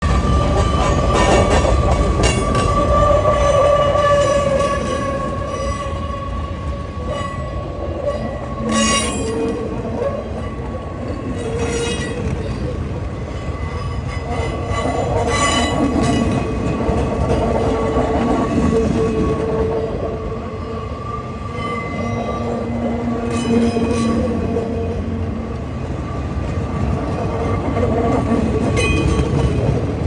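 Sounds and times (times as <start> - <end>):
freight train wheels grinding on rails: 0.0 - 30.0
sharp wheel squeals: 8.2 - 9.6.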